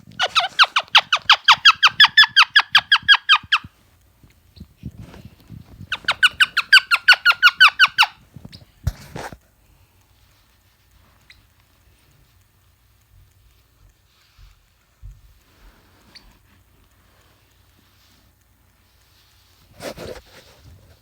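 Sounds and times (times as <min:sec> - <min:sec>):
parrot squeaky chirps: 0:00.2 - 0:03.7, 0:05.8 - 0:08.2.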